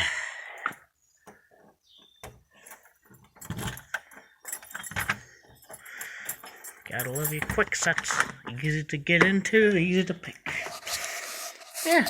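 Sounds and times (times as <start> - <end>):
knocks and rustles: 1.3 - 5.8.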